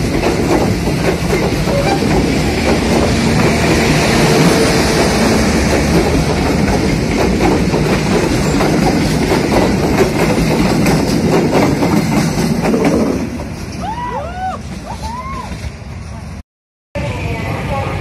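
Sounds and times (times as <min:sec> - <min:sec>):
clatter over rail joints: 0:00.0 - 0:13.8
train wheels rumbling on rail: 0:00.0 - 0:16.4.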